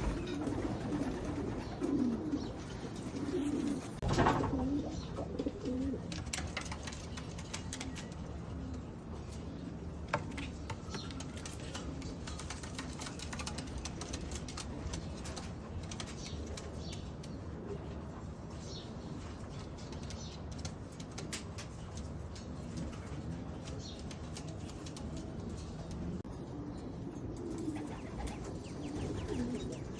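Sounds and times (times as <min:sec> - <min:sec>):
pigeons cooing low: 0:00.0 - 0:06.8, 0:22.8 - 0:29.9.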